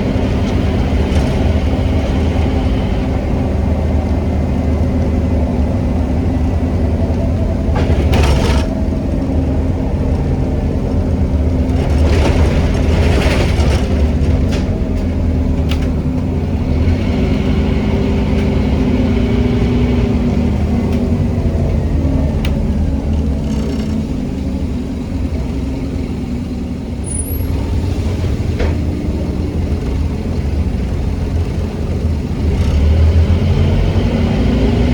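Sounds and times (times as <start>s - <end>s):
bus body knocks and rattles: 0.0s - 17.0s, 19.8s - 24.4s, 27.3s - 32.8s
bus diesel engine drone: 0.0s - 34.9s.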